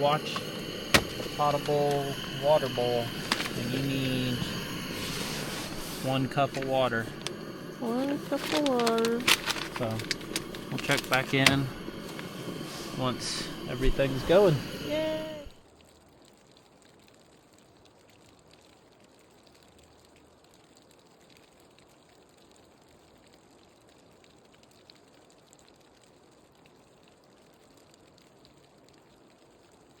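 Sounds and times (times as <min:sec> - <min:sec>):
faint hiss: 0:00.0 - 0:15.6.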